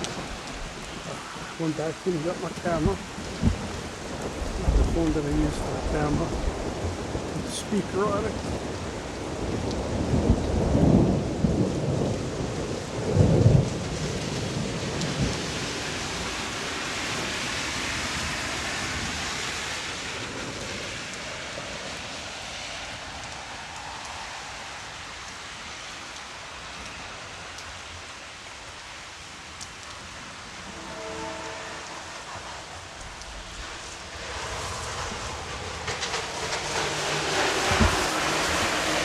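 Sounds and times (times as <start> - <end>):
thunder rumbling: 0.0 - 19.4, 30.1 - 39.0
steady rain falling: 0.0 - 39.0.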